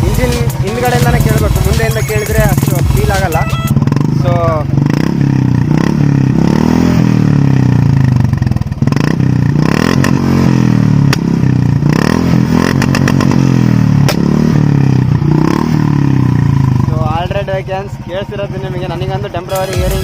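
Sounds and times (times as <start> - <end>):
exhaust backfire bangs: 0.0 - 17.8
motorcycle engine revving: 0.0 - 20.0.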